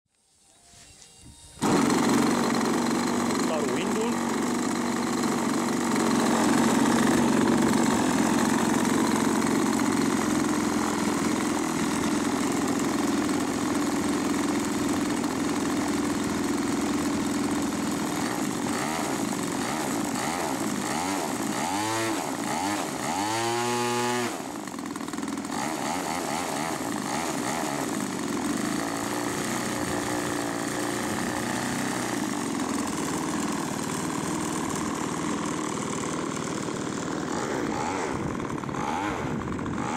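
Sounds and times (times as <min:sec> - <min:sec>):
chainsaw engine running: 0:01.6 - 0:39.9.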